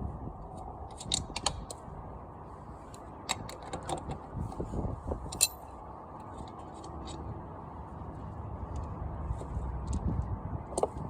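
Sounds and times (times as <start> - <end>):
metallic clinks of tools: 5.3 - 5.7.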